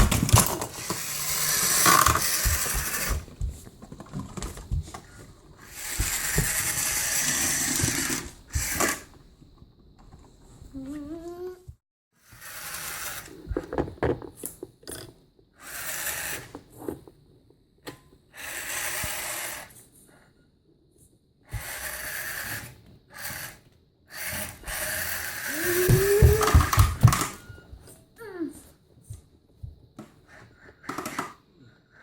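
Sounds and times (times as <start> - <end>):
toy truck motor whirring: 0.4 - 3.2, 5.6 - 9.1, 12.2 - 13.4, 15.6 - 16.6, 18.3 - 19.8, 21.5 - 27.2.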